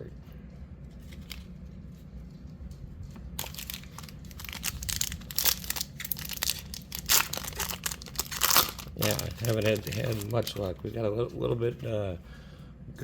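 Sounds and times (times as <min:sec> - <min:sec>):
wrapper crinkling and tearing: 0:01.0 - 0:01.5, 0:03.4 - 0:10.9.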